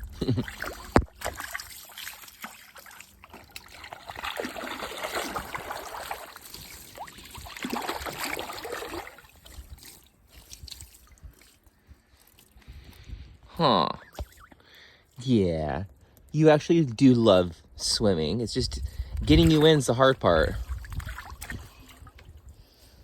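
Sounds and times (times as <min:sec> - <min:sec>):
goose splashing in water: 0:00.4 - 0:11.7.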